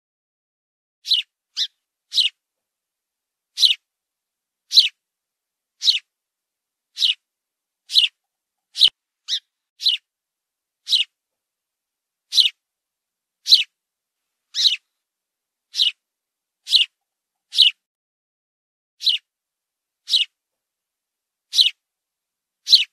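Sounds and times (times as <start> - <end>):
fledgling bird chirping: 1.0 - 2.4, 3.5 - 3.9, 4.7 - 5.0, 5.8 - 6.1, 6.9 - 7.2, 7.9 - 10.1, 10.8 - 11.2, 12.3 - 12.6, 13.4 - 13.8, 14.5 - 14.9, 15.7 - 16.0, 16.6 - 17.8, 19.0 - 19.3, 20.0 - 20.4, 21.5 - 21.8, 22.6 - 22.9.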